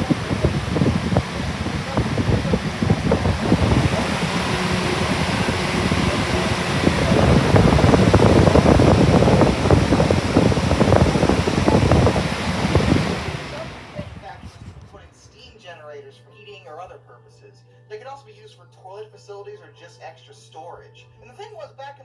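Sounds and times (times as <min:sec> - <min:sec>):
box fan airflow buffeting: 0:00.0 - 0:15.1.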